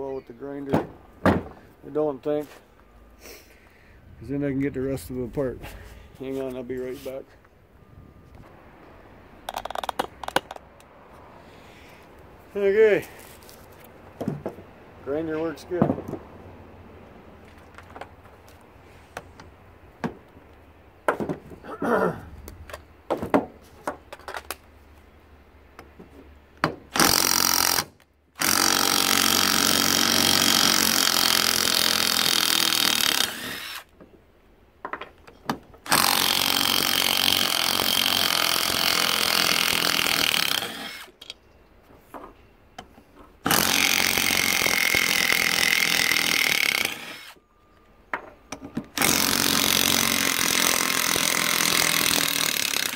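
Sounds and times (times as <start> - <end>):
power tool cutting metal shaft: 28.4 - 33.9, 35.9 - 41.1, 43.5 - 47.4, 49.0 - 52.9.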